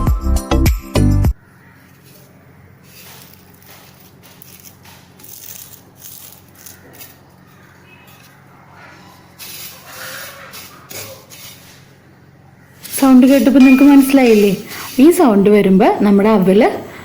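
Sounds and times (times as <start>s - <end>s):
rice flakes crackling in pan: 1.8s - 8.4s.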